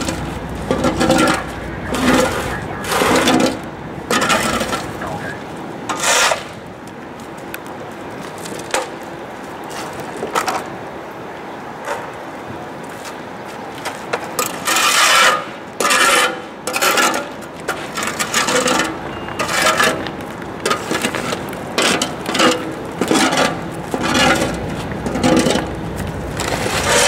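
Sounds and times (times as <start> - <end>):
rough scraping strokes: 0.0 - 5.3, 5.9 - 6.6, 14.4 - 20.0, 26.4 - 27.0.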